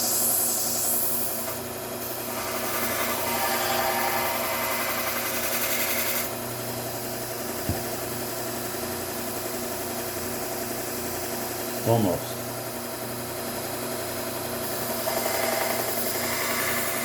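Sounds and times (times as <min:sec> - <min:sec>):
belt grinder motor running: 0:02.1 - 0:06.3, 0:14.6 - 0:17.0.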